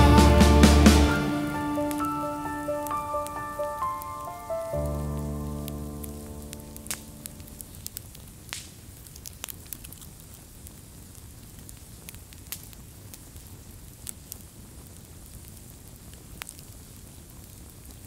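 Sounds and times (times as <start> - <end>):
low rumble and hiss: 0.0 - 17.9
sharp pops and snaps: 4.9 - 14.5.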